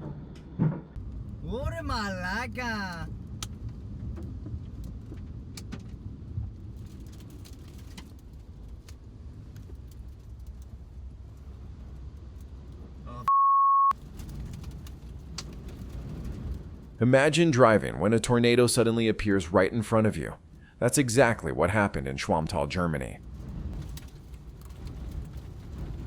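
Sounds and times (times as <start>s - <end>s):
steady low rumble: 0.0s - 13.2s, 14.0s - 26.0s
censor bleep: 13.2s - 14.0s.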